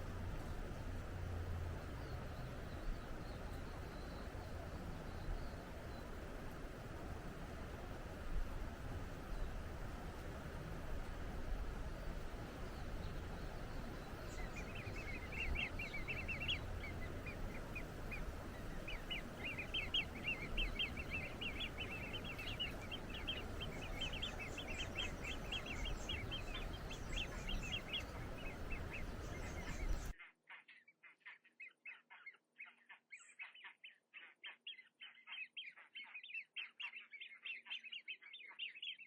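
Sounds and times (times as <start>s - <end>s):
rushing background noise: 0.0s - 30.1s
bird chirping: 12.6s - 39.0s.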